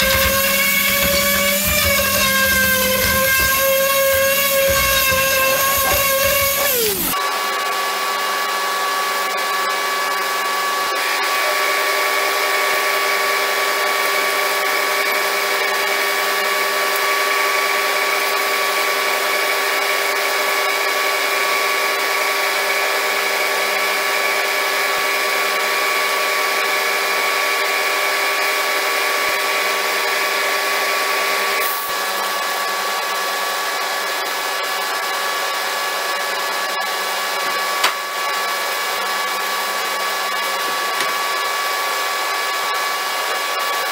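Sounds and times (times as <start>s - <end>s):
small electric motor whining: 0.0s - 7.2s.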